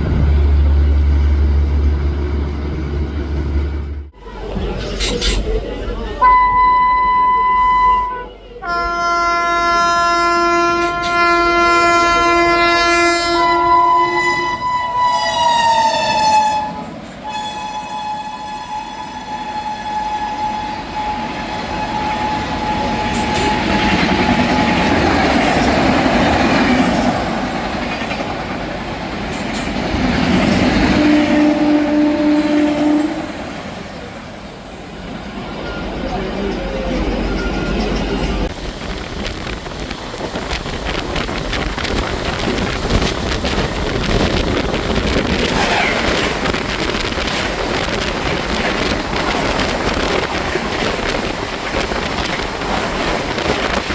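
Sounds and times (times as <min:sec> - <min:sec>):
train rushing and wheel rumble: 0:00.0 - 0:53.9
train horn blast: 0:06.2 - 0:25.1, 0:30.8 - 0:33.6.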